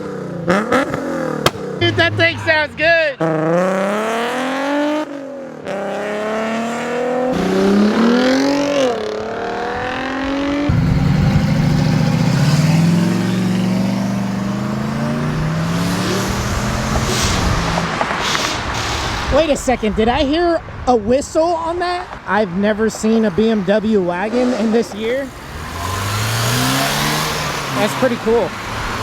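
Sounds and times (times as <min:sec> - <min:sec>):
car engine revving through gears: 0:00.0 - 0:02.6, 0:03.2 - 0:19.3, 0:24.3 - 0:29.0
deep engine pulling away: 0:10.7 - 0:18.0, 0:25.2 - 0:29.0.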